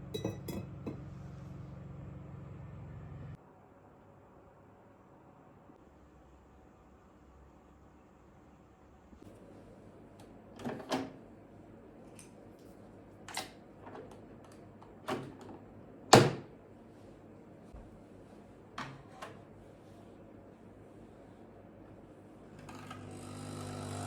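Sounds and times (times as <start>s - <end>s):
kitchen knocks and clunks: 0.1s - 1.0s.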